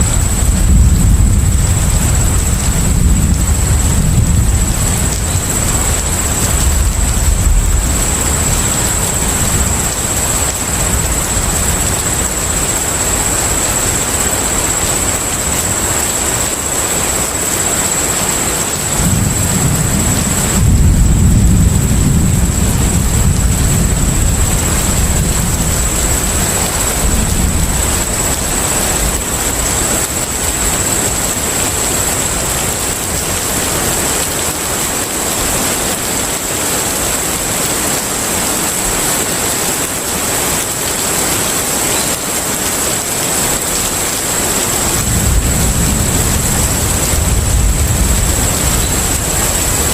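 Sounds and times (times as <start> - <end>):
low rumble: 0.0 - 12.9
water and wind wash: 0.0 - 49.9.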